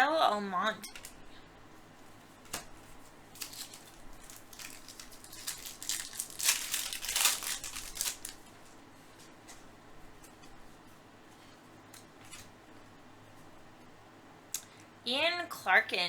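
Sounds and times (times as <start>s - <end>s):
foil wrapper crinkling: 2.5s - 9.7s.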